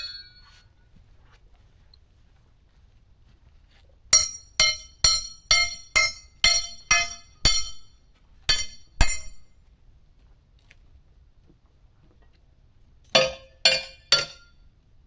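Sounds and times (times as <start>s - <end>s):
hammer striking steel plate: 0.0s - 0.5s, 4.2s - 9.5s, 13.2s - 14.6s.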